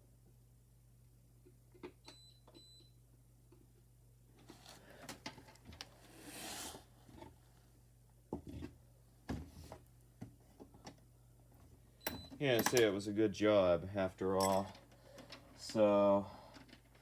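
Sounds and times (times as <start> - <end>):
rustle or scrape: 5.9 - 7.3.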